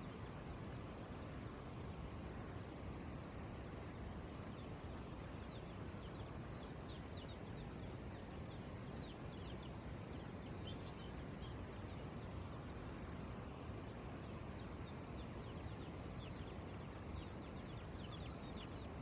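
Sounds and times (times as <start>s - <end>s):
steady background hiss: 0.0s - 19.0s
birds chirping: 3.8s - 19.0s.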